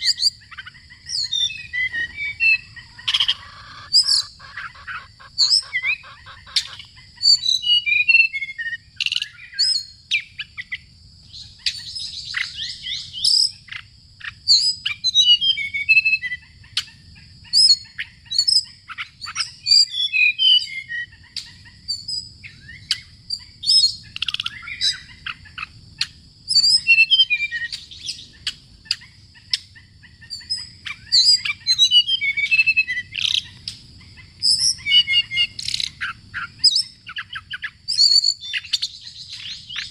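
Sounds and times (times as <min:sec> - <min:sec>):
steady high-pitched whine: 0:00.0 - 0:07.9
songbird singing: 0:00.0 - 0:39.9.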